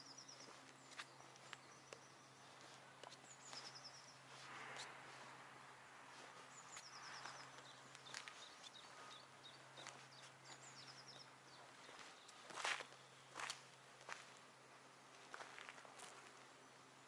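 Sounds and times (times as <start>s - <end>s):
bird chirps: 0.0s - 4.9s, 6.5s - 13.4s
songbird singing: 0.0s - 14.4s.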